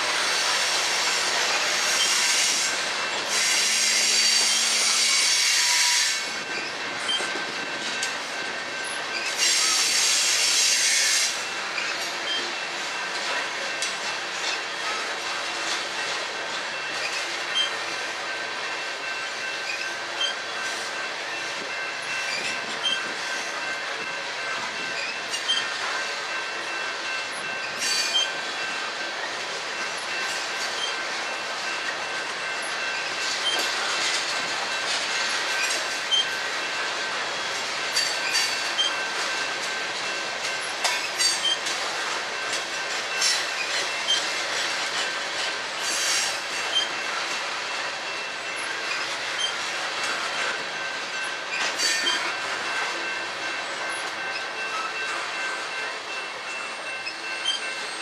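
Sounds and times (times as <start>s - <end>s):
freight train rolling: 0.0s - 58.0s
wheel clacks over rail joints: 37.5s - 47.5s.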